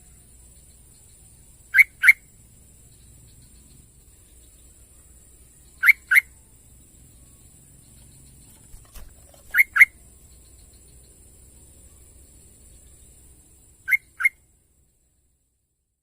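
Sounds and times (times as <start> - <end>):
steady high-pitched hiss: 0.0 - 16.0
bulbul calling: 8.0 - 10.0, 13.9 - 14.4.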